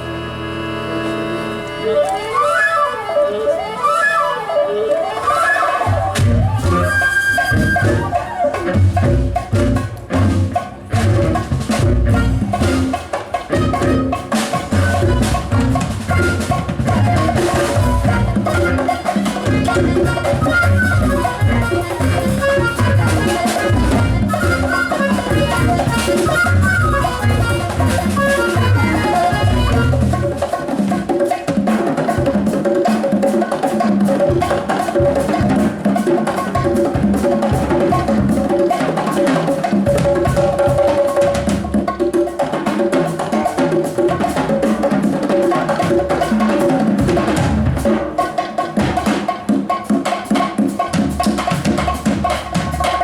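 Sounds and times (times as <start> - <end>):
held note: 0.0 - 30.6
light busy percussion: 0.0 - 53.0
live band music: 0.0 - 53.0
heavy bass and drums: 6.1 - 6.9, 8.7 - 18.8, 19.4 - 30.4.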